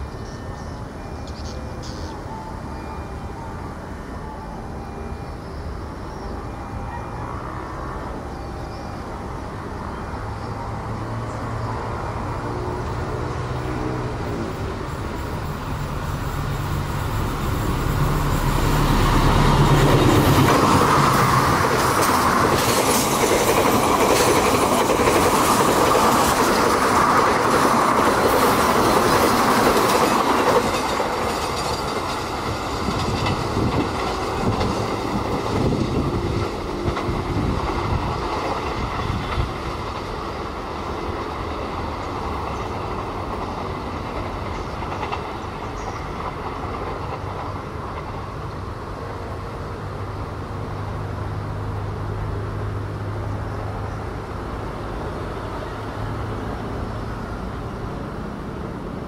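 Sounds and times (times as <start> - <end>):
diesel locomotive engine hum: 0.0 - 59.0
train wheels clacking on rail joints: 16.8 - 49.3.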